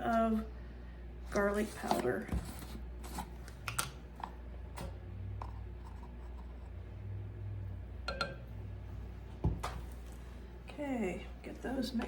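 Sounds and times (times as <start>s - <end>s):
steady low hum: 0.0s - 12.0s
spoon clinking against bowl: 8.1s - 8.4s.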